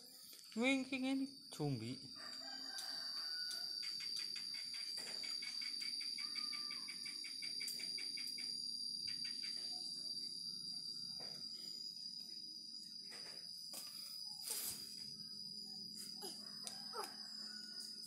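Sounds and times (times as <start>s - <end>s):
insects droning: 0.0s - 18.0s
chirps: 2.5s - 11.8s
scattered clicks: 3.5s - 6.2s, 6.9s - 8.5s.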